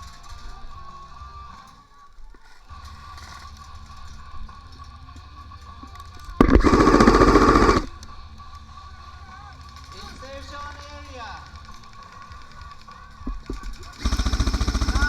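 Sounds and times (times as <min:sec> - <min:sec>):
rapid airsoft gun fire: 0:06.4 - 0:08.0, 0:12.3 - 0:15.0.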